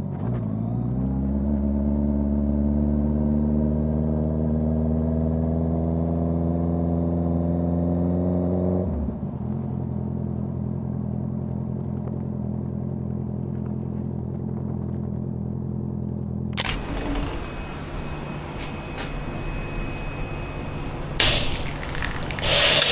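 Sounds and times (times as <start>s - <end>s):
motorcycle engine revving: 16.6s - 22.9s
rush of hissing noise: 21.2s - 22.9s.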